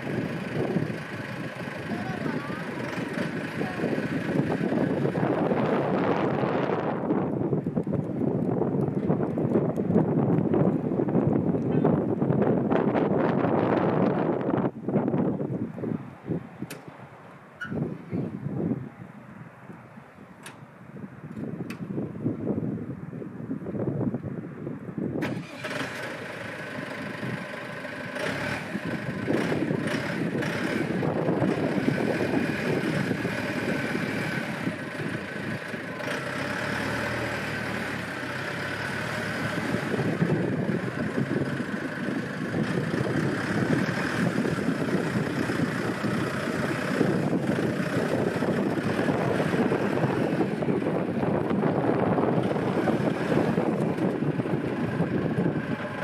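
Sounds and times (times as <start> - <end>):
backhoe engine working: 0.0 - 11.8, 25.2 - 56.0.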